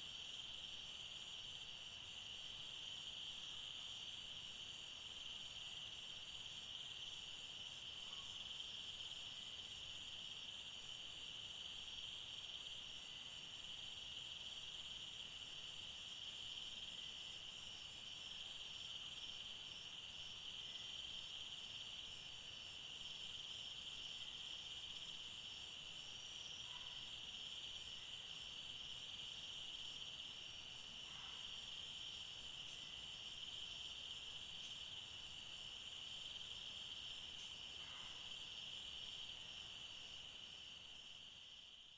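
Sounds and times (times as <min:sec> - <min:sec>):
insects trilling: 0:00.0 - 0:41.9.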